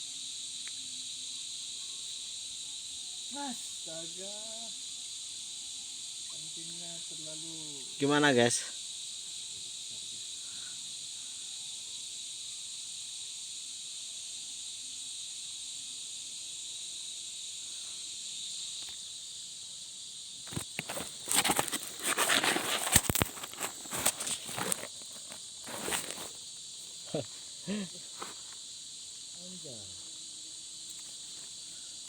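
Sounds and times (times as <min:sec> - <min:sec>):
crickets chirring: 0:00.0 - 0:32.0
rustling and knocking: 0:20.5 - 0:26.4.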